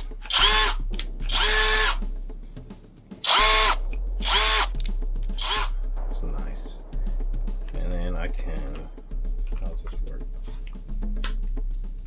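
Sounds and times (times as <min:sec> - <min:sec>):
cordless drill motor whining: 0:00.3 - 0:00.8, 0:01.4 - 0:01.9, 0:03.3 - 0:04.7, 0:05.4 - 0:05.7.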